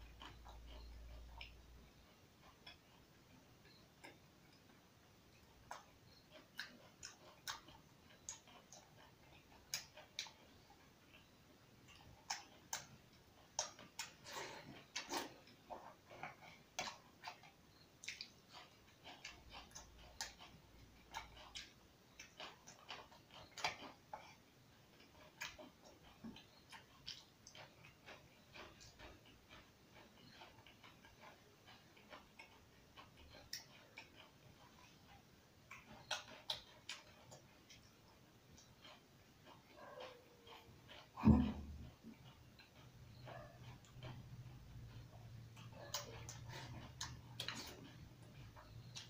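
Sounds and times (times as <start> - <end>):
wet lip smacks and mouth clicks: 11.9 - 41.2, 41.9 - 49.0.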